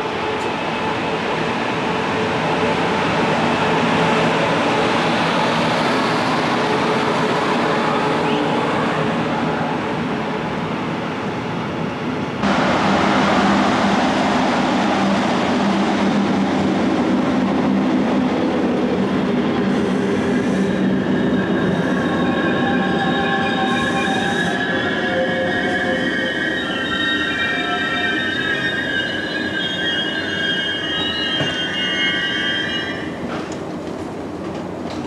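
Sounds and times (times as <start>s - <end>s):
train rolling on rails: 0.0s - 35.0s
high-pitched wheel squeal: 20.4s - 33.2s.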